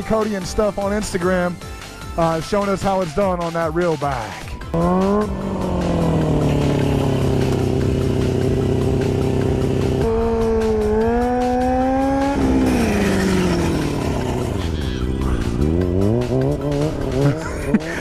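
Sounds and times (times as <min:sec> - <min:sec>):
motorcycle engine revving: 0:04.6 - 0:18.0.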